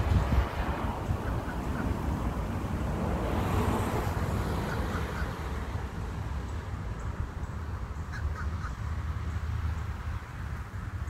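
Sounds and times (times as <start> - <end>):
wind rumbling on microphone: 0.0 - 11.0
bird calling: 4.6 - 5.4.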